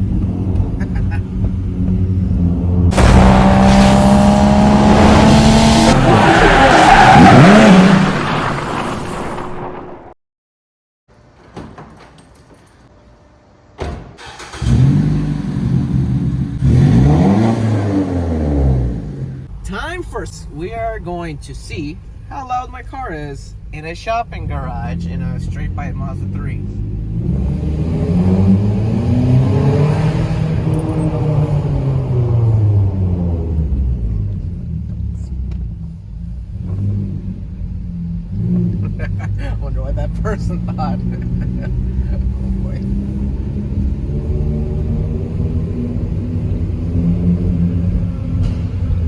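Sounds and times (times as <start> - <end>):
loud car engine revving: 0.0 - 8.8, 14.4 - 19.5, 25.4 - 34.1, 36.5 - 49.0.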